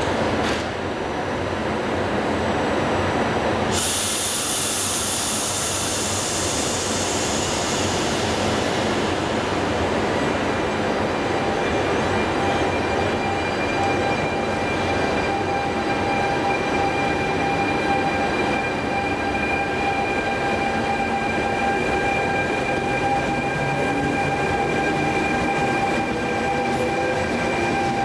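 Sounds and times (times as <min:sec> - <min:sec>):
train rumbling: 0:00.0 - 0:28.0
high hiss: 0:03.7 - 0:09.4.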